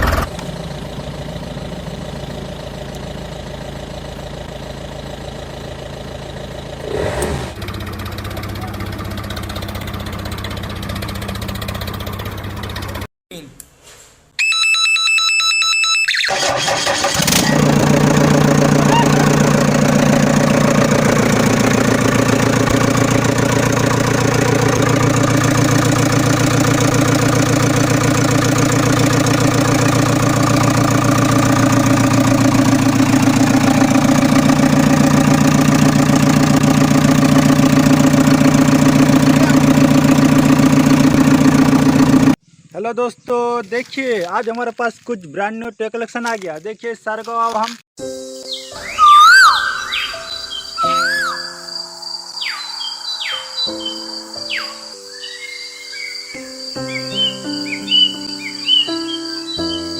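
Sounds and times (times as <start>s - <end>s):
engine starting and running: 0.0s - 13.1s, 16.0s - 42.4s, 48.8s - 51.8s
high electronic tone: 48.7s - 51.8s.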